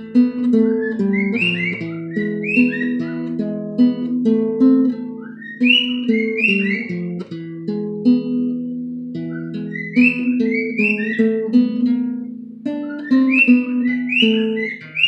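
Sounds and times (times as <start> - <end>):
acoustic guitar fingerpicked melody: 0.0 - 15.0
bird whistling: 0.6 - 3.5, 5.1 - 7.2, 9.2 - 11.5, 12.8 - 15.0.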